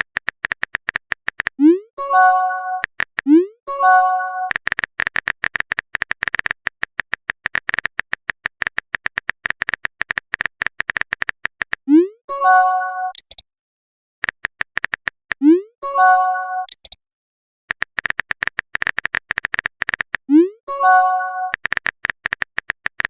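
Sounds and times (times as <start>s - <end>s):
keyboard typing clicks: 0.0s - 12.0s, 13.1s - 13.4s, 14.2s - 17.0s, 17.7s - 23.0s
chiming notification tone: 2.0s - 2.8s, 3.7s - 4.5s, 12.0s - 13.2s, 15.6s - 16.7s, 20.4s - 21.5s.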